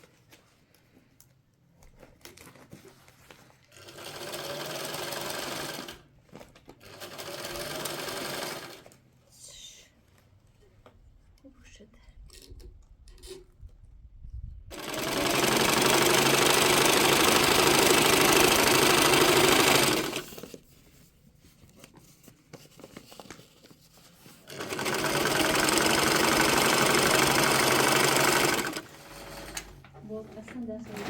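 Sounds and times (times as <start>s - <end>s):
sewing machine stitching: 3.7s - 6.0s, 6.8s - 8.9s, 14.7s - 20.6s, 24.4s - 29.9s, 30.8s - 31.0s.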